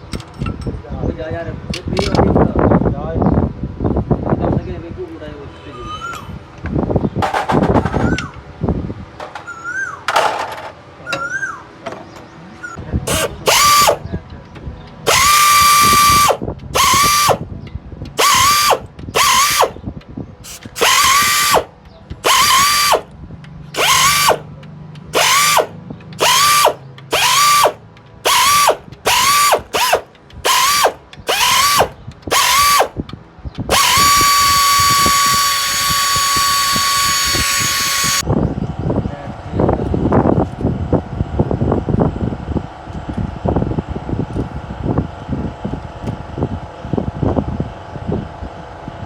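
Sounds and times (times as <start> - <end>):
power tool whine: 13.1 - 14.1, 15.1 - 17.5, 18.2 - 19.8, 20.4 - 23.1, 23.8 - 24.5, 25.1 - 33.0, 33.7 - 38.2.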